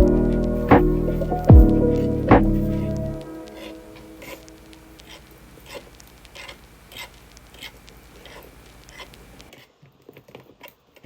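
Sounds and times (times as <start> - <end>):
low hum: 0.0 - 9.5
faint clicks: 4.2 - 9.5.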